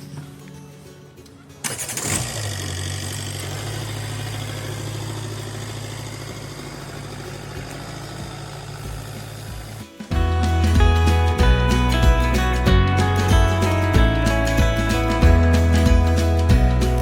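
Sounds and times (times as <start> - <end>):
vehicle engine starting and idling: 1.2 - 17.0.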